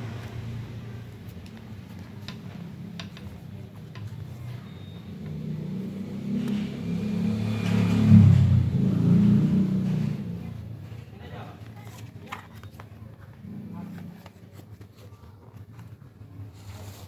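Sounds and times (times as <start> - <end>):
low engine: 0.0 - 12.1.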